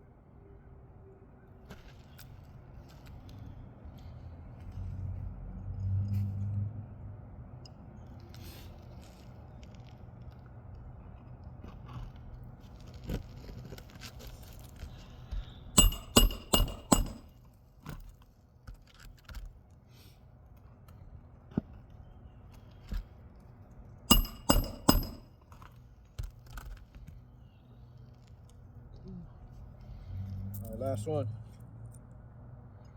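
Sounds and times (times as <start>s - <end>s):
hammer striking roofing nails: 15.8s - 17.3s, 24.1s - 25.3s.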